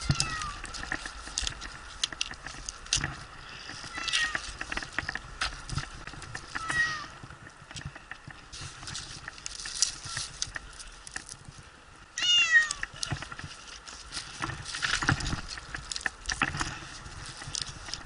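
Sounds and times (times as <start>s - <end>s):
cat meowing in distress: 0.0s - 0.6s, 3.9s - 4.4s, 6.6s - 7.2s, 12.2s - 13.0s
scattered clicks: 0.1s - 6.7s
scratchy rustling: 7.7s - 11.7s, 12.9s - 18.0s.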